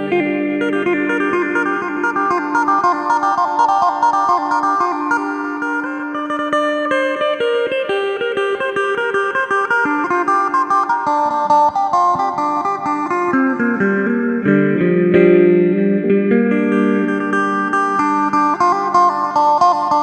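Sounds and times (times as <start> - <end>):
plucked lute melody: 0.0 - 20.0.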